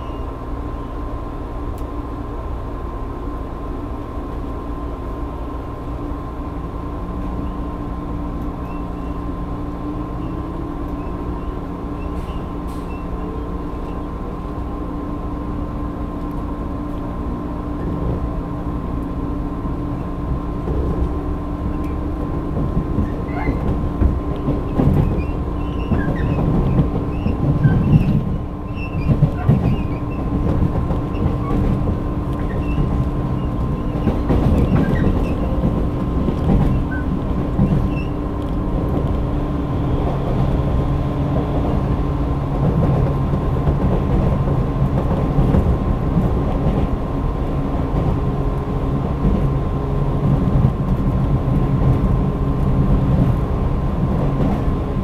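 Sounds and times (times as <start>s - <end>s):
train wheels and motors rumbling: 0.0s - 55.0s
wheels knocking and rattling: 21.7s - 39.2s.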